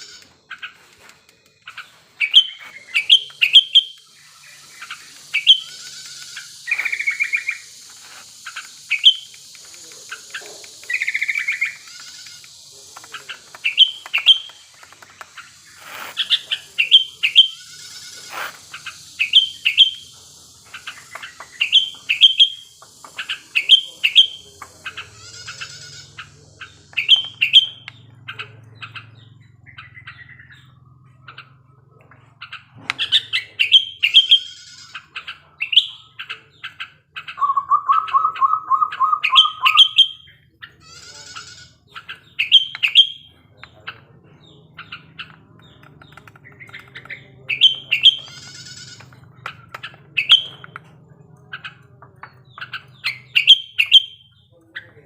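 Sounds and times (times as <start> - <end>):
bulbul chirping song: 0.0 - 55.0
buzzy bird notes: 0.0 - 55.0
steady high hiss: 2.8 - 26.1.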